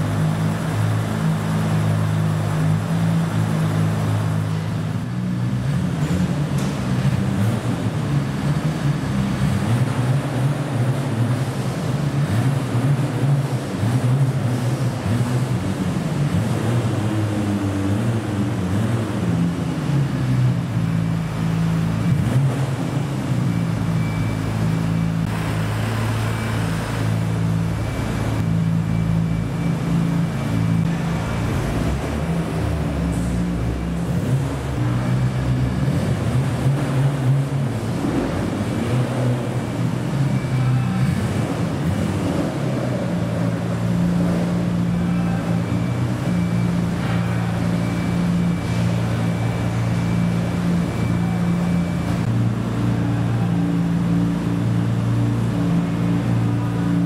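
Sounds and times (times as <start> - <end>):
car engines running at low revs: 0.0 - 57.0.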